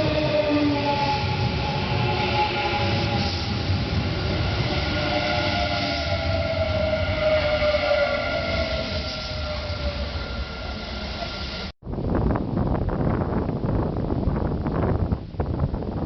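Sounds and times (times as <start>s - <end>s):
electric train rumble and whine: 0.0s - 16.0s.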